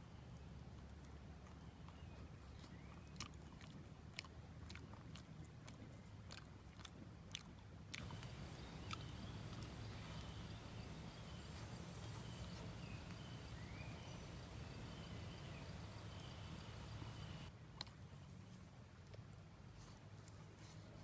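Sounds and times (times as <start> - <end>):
insects trilling: 8.0 - 17.5.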